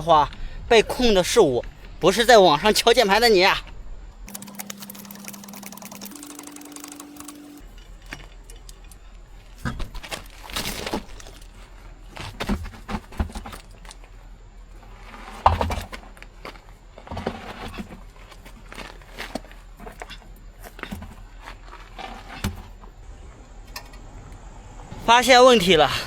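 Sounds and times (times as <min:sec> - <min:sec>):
hand tools and metal parts clinking: 0:04.3 - 0:11.8.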